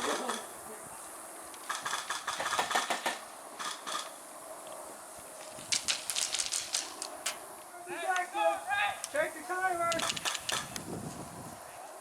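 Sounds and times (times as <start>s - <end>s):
airsoft guns firing: 1.6s - 4.1s, 9.9s - 10.8s.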